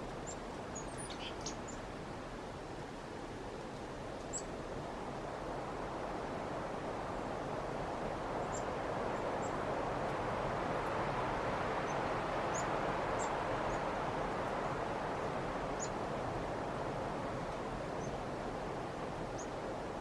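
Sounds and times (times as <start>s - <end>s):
chickadees chirping: 0.8s - 1.7s.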